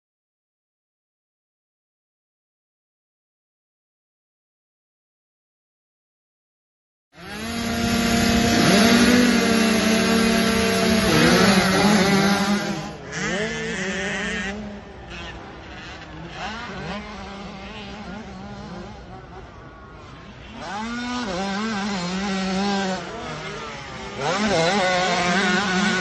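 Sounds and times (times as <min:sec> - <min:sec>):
motocross bike engines revving: 0:07.2 - 0:26.0.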